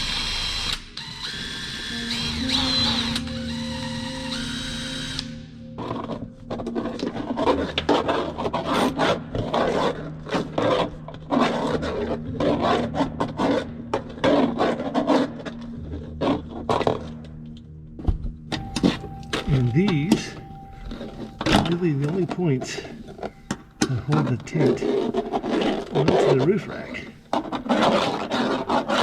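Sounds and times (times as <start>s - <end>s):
electric drill running: 0.0s - 5.6s
hand tool scraping metal: 5.8s - 17.1s, 18.5s - 29.0s.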